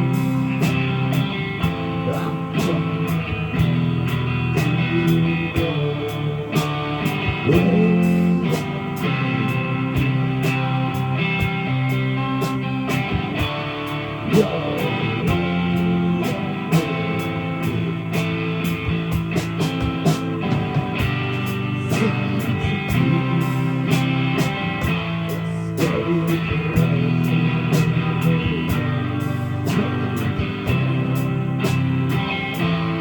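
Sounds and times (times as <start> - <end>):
drums keeping a steady beat: 0.0 - 33.0
electric guitar: 0.0 - 33.0.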